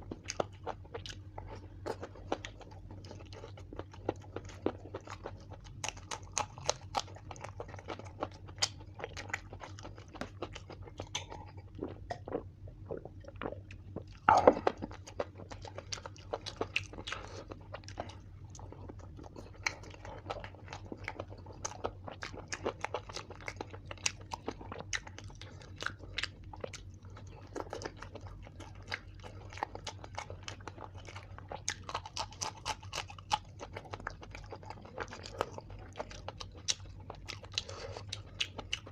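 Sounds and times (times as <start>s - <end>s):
chewing and crunching food: 0.0s - 38.9s
faint low hum: 0.0s - 38.9s.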